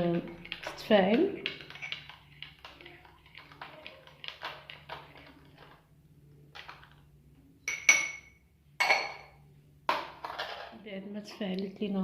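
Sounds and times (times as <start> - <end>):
kitchen utensils and dishes clinking: 0.0 - 5.0, 10.0 - 10.8.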